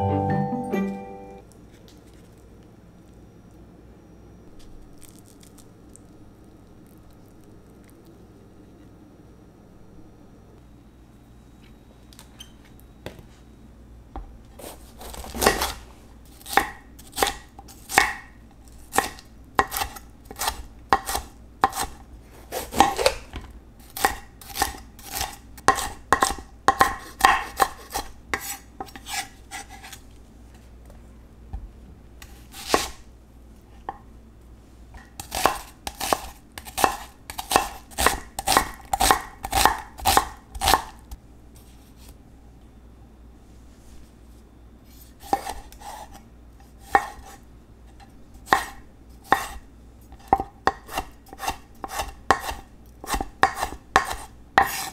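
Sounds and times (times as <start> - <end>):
knife chopping on cutting board: 14.6 - 15.8, 16.4 - 18.3, 18.9 - 23.2, 24.0 - 30.0, 32.2 - 33.0, 35.0 - 41.0, 45.2 - 46.2, 46.8 - 47.4, 48.5 - 54.9.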